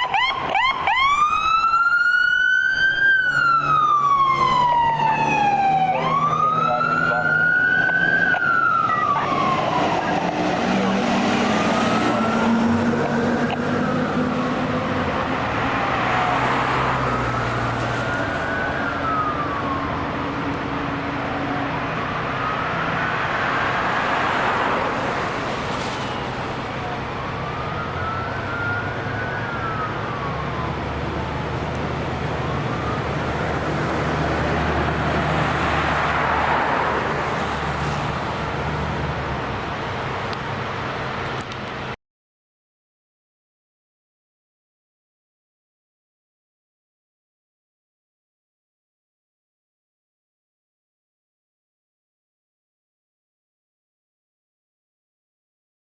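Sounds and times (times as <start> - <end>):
emergency siren wailing: 0.0 - 41.1
fire truck engine and road noise: 0.0 - 42.0.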